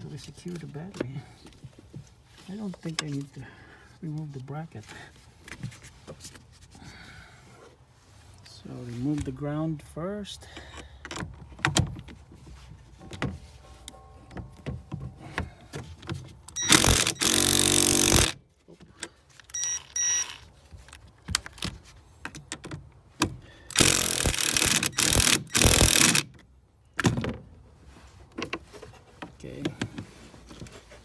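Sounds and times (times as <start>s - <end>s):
ratchet wrench clicking: 16.5s - 18.4s, 23.7s - 26.3s.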